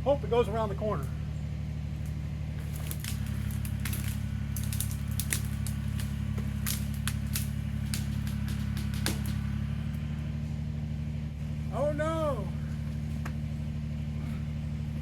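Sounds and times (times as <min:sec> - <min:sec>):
tractor diesel engine under load: 0:00.0 - 0:15.0
sharp cracks and snaps: 0:02.0 - 0:10.1.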